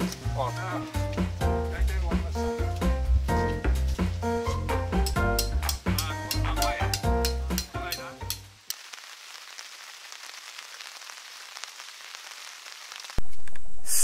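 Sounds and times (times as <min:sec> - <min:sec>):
background music: 0:00.0 - 0:08.6
rain hissing: 0:00.0 - 0:14.0.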